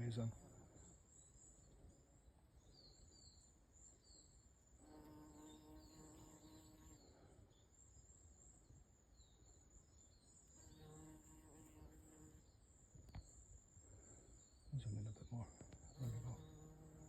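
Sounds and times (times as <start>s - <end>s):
faint bird chirps: 0.0s - 17.0s
bumblebee buzzing in flight: 4.8s - 7.1s, 10.7s - 12.4s, 16.0s - 17.0s.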